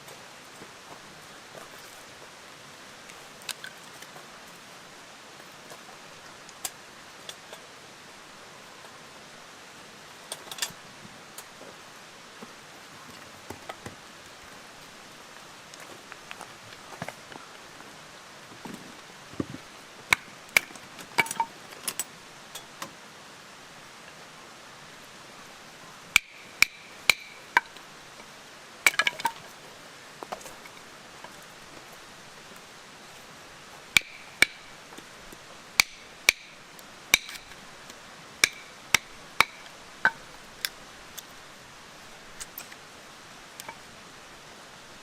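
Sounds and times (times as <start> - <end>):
sharp metallic knocks: 26.2 - 27.7, 34.0 - 34.7, 35.8 - 37.5, 38.4 - 40.2.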